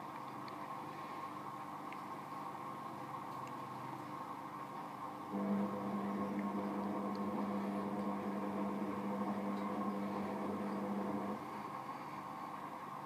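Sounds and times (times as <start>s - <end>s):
steady hum: 5.0s - 13.0s
washing machine spinning: 5.3s - 11.6s.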